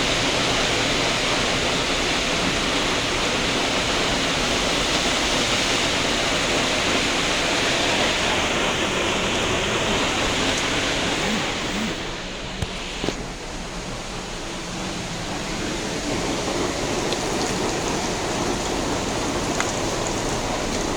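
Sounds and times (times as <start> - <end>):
heavy rain falling: 0.0 - 20.9.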